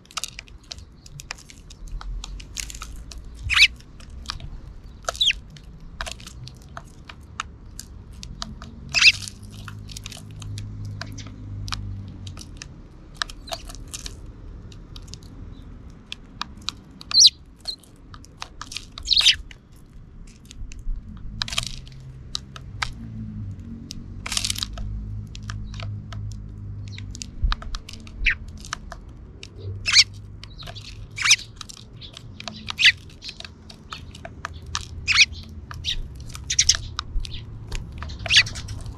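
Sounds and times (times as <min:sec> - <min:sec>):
sparrows cracking seeds: 0:00.0 - 0:38.9
sparrow chirps: 0:00.6 - 0:06.4, 0:08.9 - 0:11.5, 0:13.2 - 0:13.8, 0:17.0 - 0:17.9, 0:19.0 - 0:19.5, 0:28.1 - 0:28.5, 0:29.6 - 0:38.9.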